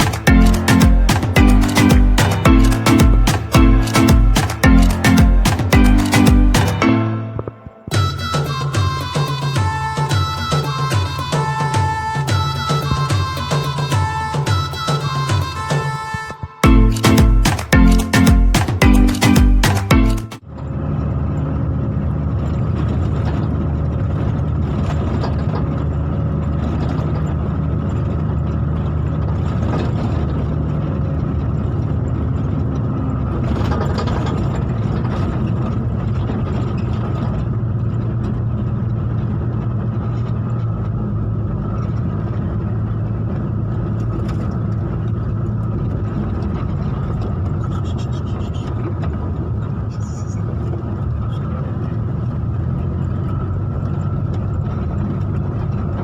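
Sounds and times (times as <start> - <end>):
vehicle engine running steadily: 20.4 - 56.0.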